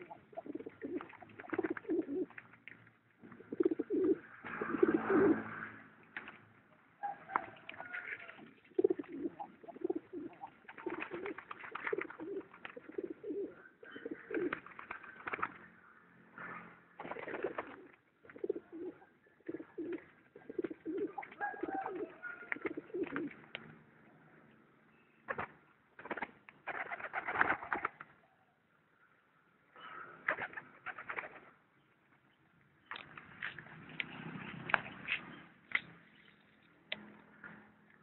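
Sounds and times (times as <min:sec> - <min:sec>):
pigeons cooing: 0:00.0 - 0:02.4, 0:03.2 - 0:05.5, 0:07.1 - 0:15.4, 0:17.0 - 0:23.4.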